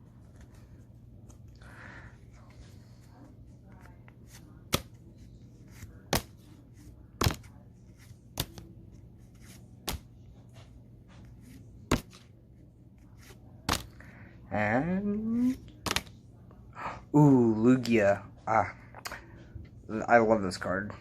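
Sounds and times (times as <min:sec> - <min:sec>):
trading card snapping: 0:07.2 - 0:07.5, 0:08.4 - 0:08.6, 0:09.8 - 0:10.1, 0:11.9 - 0:12.2, 0:13.2 - 0:13.9, 0:15.8 - 0:16.1.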